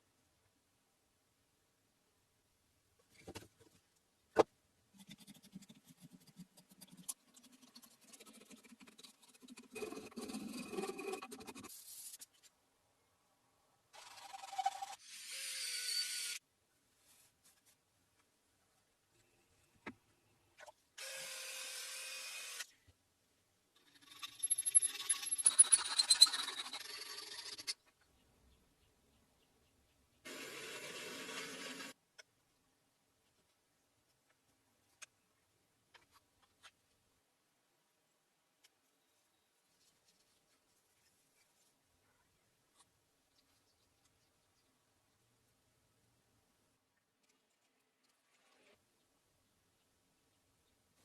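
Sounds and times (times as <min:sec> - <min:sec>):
metal scraping with clinks: 0:24.1 - 0:27.4.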